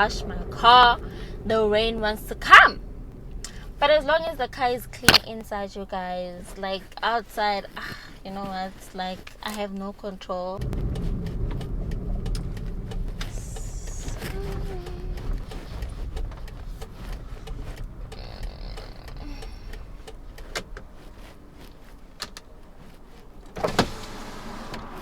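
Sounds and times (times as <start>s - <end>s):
road and engine rumble: 0.0s - 25.0s
light clicks: 10.6s - 23.6s.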